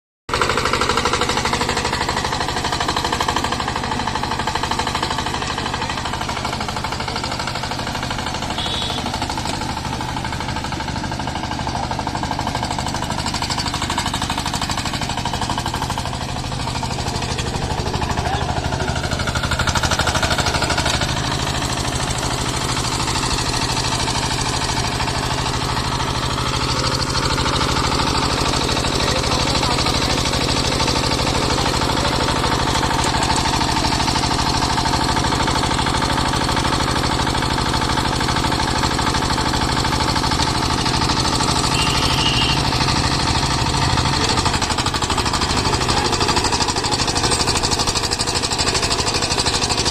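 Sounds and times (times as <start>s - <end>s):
diesel engine knocking steadily: 0.3s - 49.9s.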